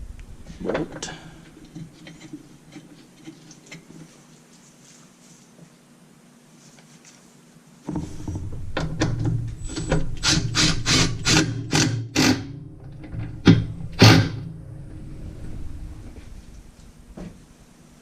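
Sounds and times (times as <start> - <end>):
impact wrench hammering: 8.8 - 12.5.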